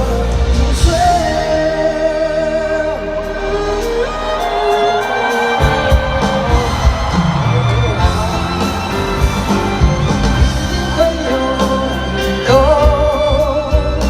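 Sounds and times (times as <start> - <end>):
live pop-rock band playing: 0.0 - 14.0
person singing: 0.0 - 14.0.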